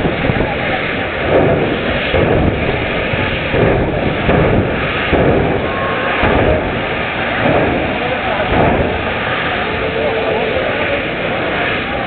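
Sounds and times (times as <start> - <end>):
race car engine running loudly: 0.0 - 12.0.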